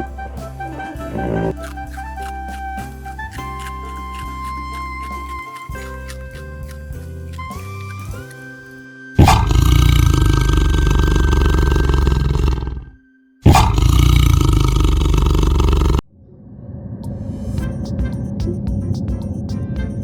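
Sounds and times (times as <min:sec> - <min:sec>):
background music: 0:00.0 - 0:15.5, 0:17.6 - 0:20.0
tiger roaring: 0:01.0 - 0:02.5, 0:09.2 - 0:16.0.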